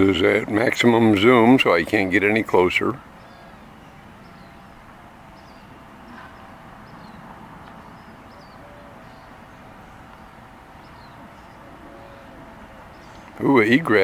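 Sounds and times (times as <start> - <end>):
faint bird chirps: 7.9 - 14.0.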